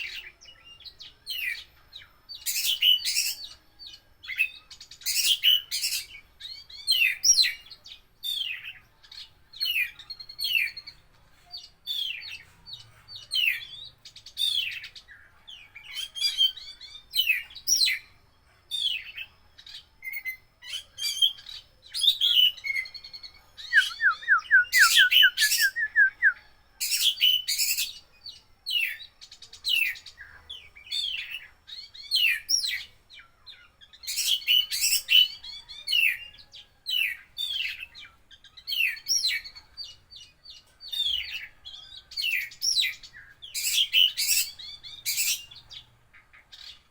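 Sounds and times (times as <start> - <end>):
bird rapid trill: 20.1 - 27.9
bird singing whistled phrases: 23.6 - 27.8.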